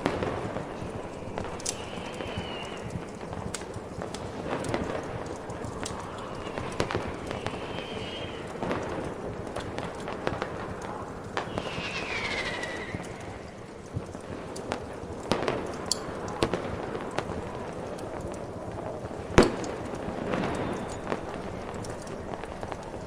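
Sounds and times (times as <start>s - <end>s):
firework whistle falling in pitch: 0.0s - 3.6s, 4.7s - 9.1s, 11.4s - 13.8s
fireworks pops and crackles: 0.0s - 23.0s.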